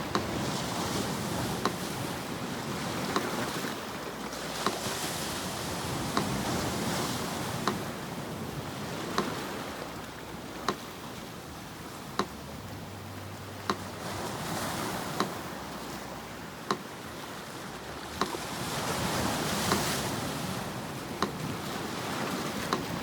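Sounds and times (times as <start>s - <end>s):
metronome ticking: 0.0s - 17.2s, 17.9s - 23.0s
sea surf: 0.0s - 23.0s.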